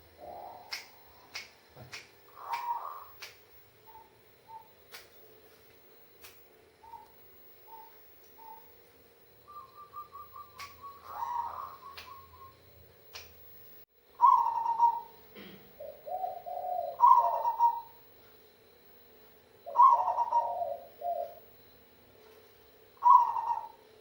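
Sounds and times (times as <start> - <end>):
dove cooing: 0.0 - 3.2, 3.8 - 4.8, 6.8 - 8.8, 9.5 - 12.6, 14.2 - 18.1, 19.6 - 21.5, 23.0 - 24.0
sharp clicks: 0.7 - 3.4, 4.9 - 5.2, 10.6 - 10.8, 11.9 - 12.2, 13.1 - 13.4.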